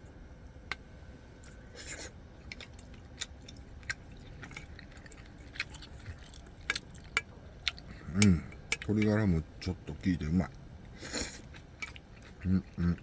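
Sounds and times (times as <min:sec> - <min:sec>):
person chewing: 0:01.4 - 0:09.2, 0:10.5 - 0:13.0.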